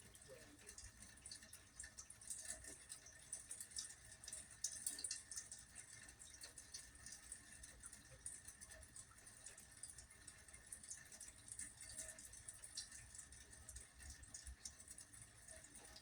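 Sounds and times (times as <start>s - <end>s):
rain dripping: 0.0s - 16.0s.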